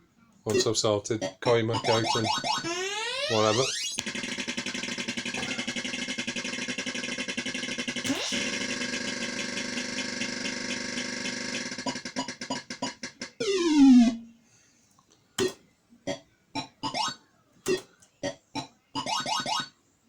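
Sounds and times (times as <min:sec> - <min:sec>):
synthesized tune: 0:01.7 - 0:08.6, 0:12.6 - 0:14.4
electronic blips: 0:01.7 - 0:08.8, 0:11.7 - 0:14.3
quickening electronic pulses: 0:01.7 - 0:09.3, 0:11.9 - 0:14.3.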